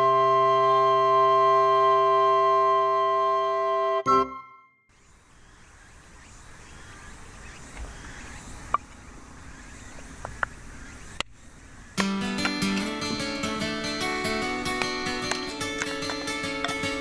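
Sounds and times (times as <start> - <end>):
faint outdoor hiss: 4.9 - 17.0.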